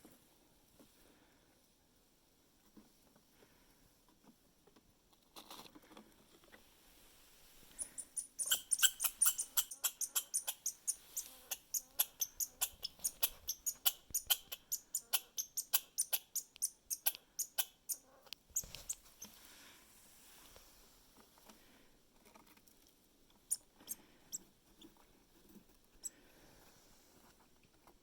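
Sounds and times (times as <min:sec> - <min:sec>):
squirrel clicking: 0:08.0 - 0:19.0.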